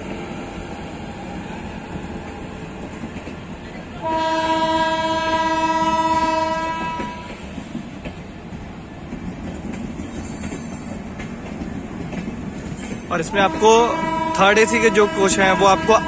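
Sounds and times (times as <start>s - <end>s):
train coaches clattering past: 0.0s - 16.0s
train horn blast: 4.0s - 7.4s, 13.3s - 16.0s.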